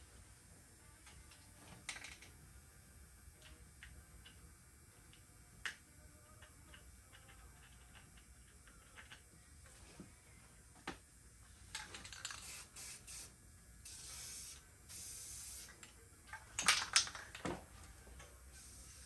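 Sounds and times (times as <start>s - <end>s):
spray paint can hissing: 12.3s - 15.7s.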